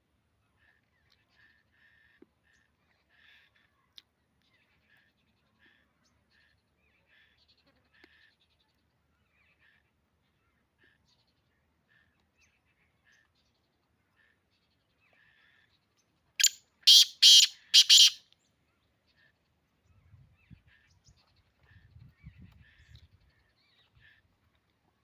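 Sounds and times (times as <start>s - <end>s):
francolin harsh grating call: 16.4s - 18.2s
small birds chirping: 16.4s - 18.2s.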